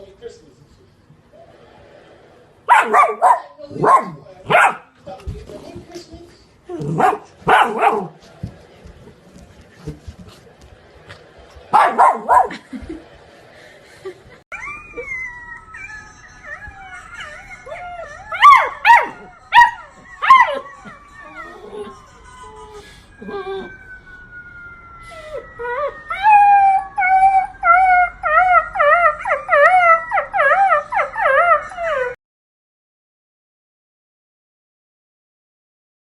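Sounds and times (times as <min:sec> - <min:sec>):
puppy yelping: 0:02.7 - 0:04.9, 0:14.5 - 0:24.0
puppy howling: 0:14.5 - 0:32.2.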